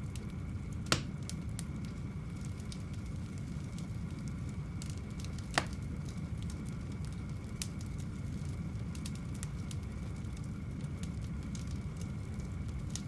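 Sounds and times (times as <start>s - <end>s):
wood fire burning with crackles: 0.0s - 13.0s
loud sharp pop of fire: 0.8s - 1.3s, 5.5s - 5.8s.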